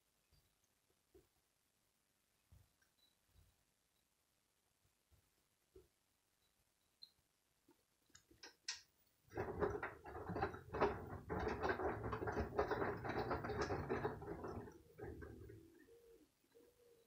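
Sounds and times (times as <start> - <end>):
washing machine drum knocking: 9.3 - 15.7
washing machine hum and rumble: 9.3 - 15.8.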